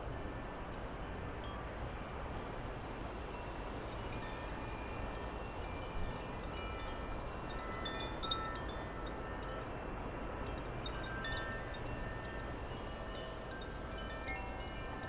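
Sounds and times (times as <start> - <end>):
wind chimes ringing: 3.3 - 15.0.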